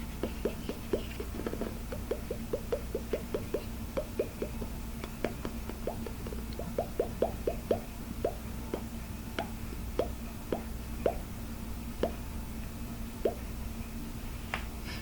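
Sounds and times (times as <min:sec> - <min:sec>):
faint steady hum: 0:00.0 - 0:15.0
fingers tapping hollow plastic: 0:00.2 - 0:11.3, 0:12.0 - 0:12.3, 0:13.2 - 0:13.5.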